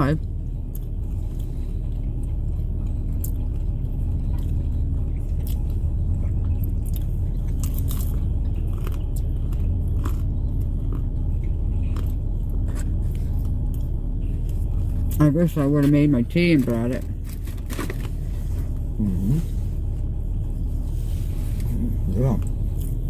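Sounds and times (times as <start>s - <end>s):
car engine idling: 0.0s - 23.0s
person chewing food: 0.3s - 15.2s.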